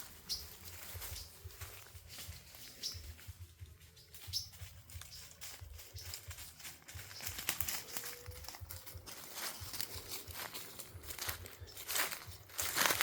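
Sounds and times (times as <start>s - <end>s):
footsteps crunching through dry leaves: 0.0s - 13.0s
high bird chirp: 0.1s - 1.4s, 2.3s - 6.3s.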